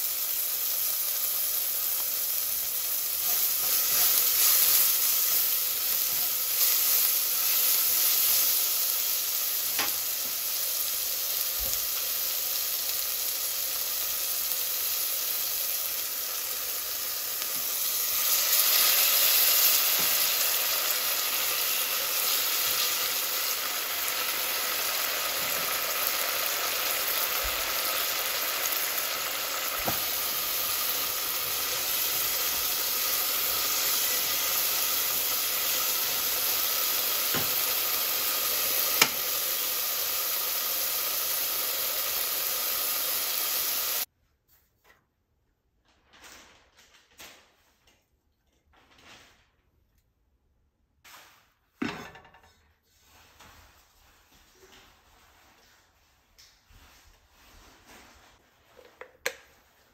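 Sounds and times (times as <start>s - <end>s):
food sizzling in hot oil: 0.0s - 44.1s.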